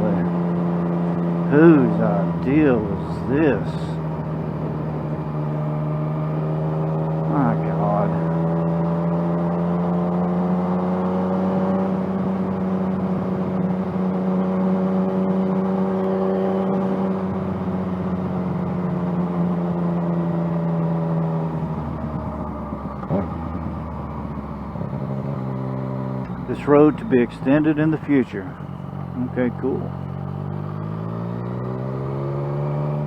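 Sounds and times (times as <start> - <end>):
motorcycle engine cruising: 0.0 - 33.0.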